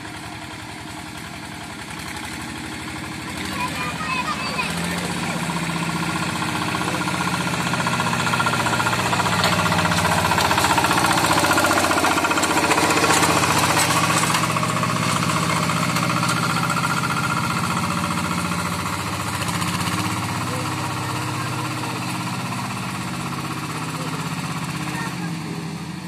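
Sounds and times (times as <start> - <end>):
diesel tractor engine running: 0.0 - 26.0.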